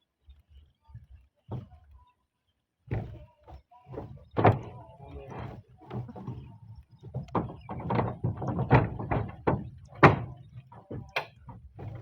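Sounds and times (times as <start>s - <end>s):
roof tiles knocking: 2.9s - 12.0s.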